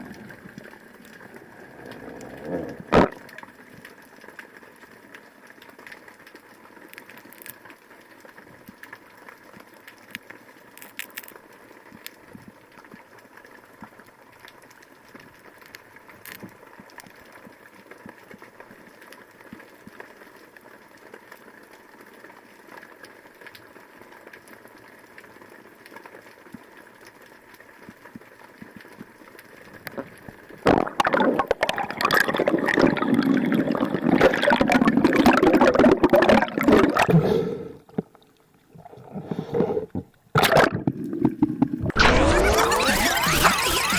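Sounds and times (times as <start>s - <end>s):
muffled underwater sound: 0.0s - 3.8s, 29.8s - 43.9s
water gurgling and splashing: 0.0s - 3.9s, 29.8s - 43.9s
faint crackling and clicks: 0.0s - 37.1s.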